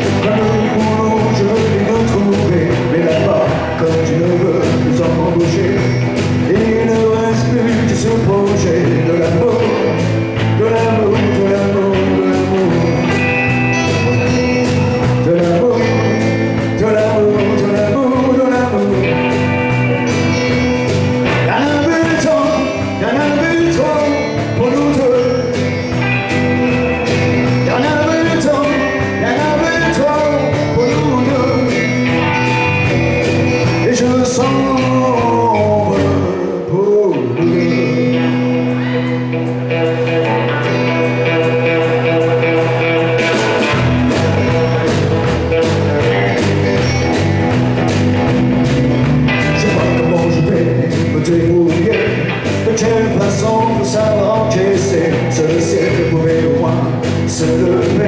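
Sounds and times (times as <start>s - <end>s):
man singing: 0.0s - 48.0s, 48.6s - 58.0s
country rock band playing: 0.0s - 58.0s.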